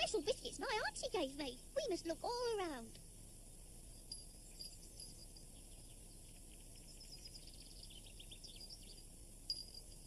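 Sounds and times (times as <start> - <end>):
low hiss: 0.0 - 10.0
faint high chirping: 3.8 - 10.0.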